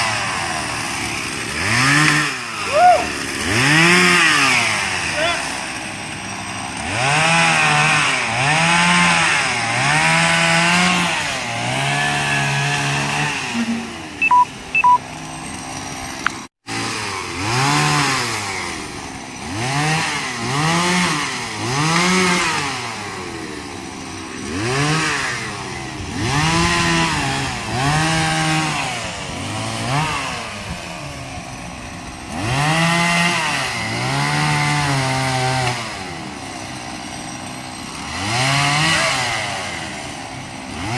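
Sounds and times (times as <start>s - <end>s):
chainsaw engine revving: 0.0s - 40.9s
short beeps: 13.6s - 15.0s.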